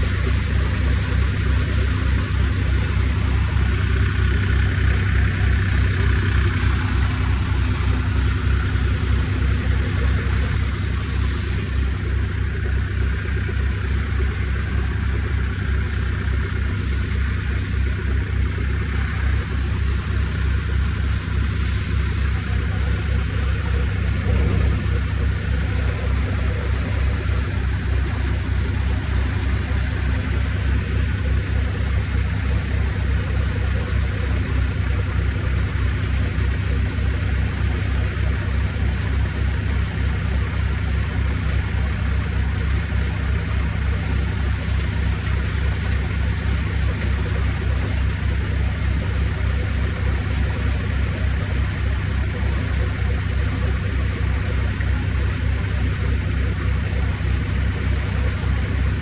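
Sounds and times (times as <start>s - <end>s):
tractor engine running: 0.0s - 59.0s
threshing machine rushing noise: 24.0s - 27.6s.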